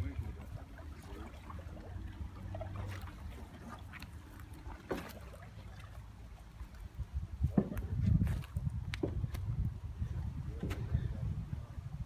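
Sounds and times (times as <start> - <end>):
faint water splashing: 0.0 - 11.9
paddle knocking against hull: 7.4 - 9.6, 10.2 - 11.2.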